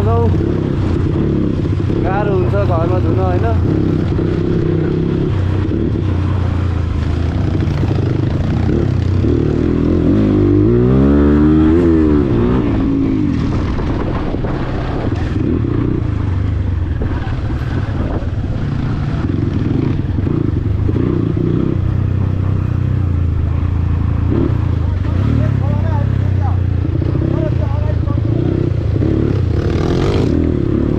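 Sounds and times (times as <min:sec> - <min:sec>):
dirt bike engine revving: 0:00.0 - 0:30.9.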